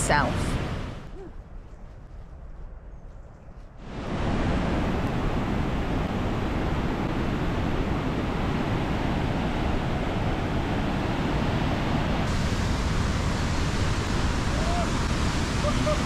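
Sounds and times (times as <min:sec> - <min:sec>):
waterfall rushing loudly: 0:03.9 - 0:16.0.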